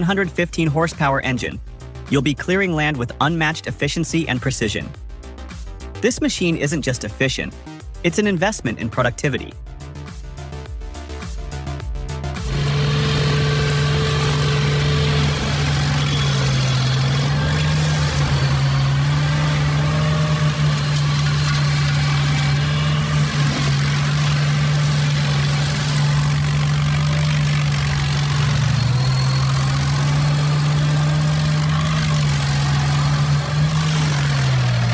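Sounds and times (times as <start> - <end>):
large engine humming: 11.6 - 34.9.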